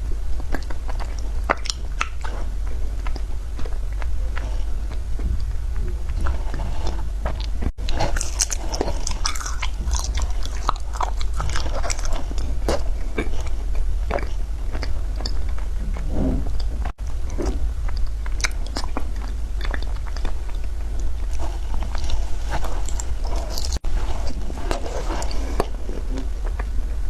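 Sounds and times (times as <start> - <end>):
steady low hum: 0.0 - 27.0
ice crunching while chewed: 6.1 - 15.7, 17.3 - 26.8.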